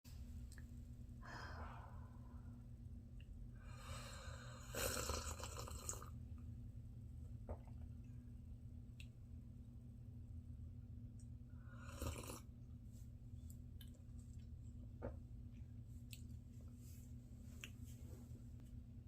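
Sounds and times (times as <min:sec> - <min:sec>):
person slurping hot coffee: 0:04.6 - 0:06.1, 0:11.8 - 0:12.5.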